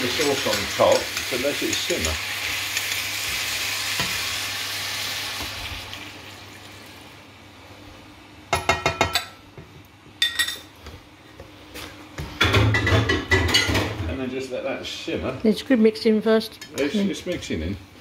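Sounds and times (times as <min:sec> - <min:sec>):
food sizzling in a wok: 0:00.0 - 0:07.0.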